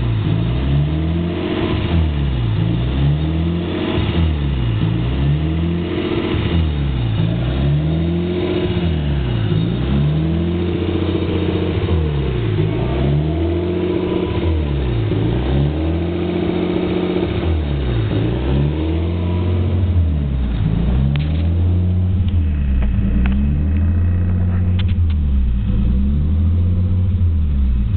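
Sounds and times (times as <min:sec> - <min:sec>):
car engine idling roughly: 0:01.3 - 0:18.4, 0:19.5 - 0:27.9.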